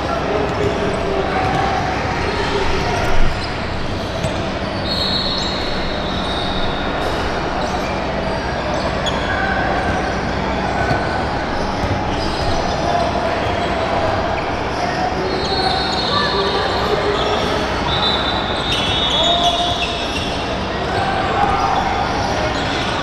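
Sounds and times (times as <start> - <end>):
echoing crowd noise: 0.0 - 23.0
sneakers squeaking: 0.0 - 23.0
basketball bouncing on court: 0.4 - 4.8, 8.7 - 14.2.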